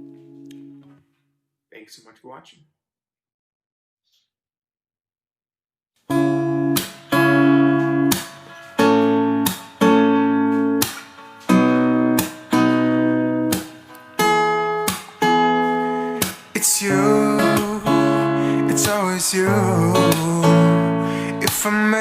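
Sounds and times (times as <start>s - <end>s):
acoustic guitar strumming chords: 0.0s - 1.0s, 6.1s - 22.0s.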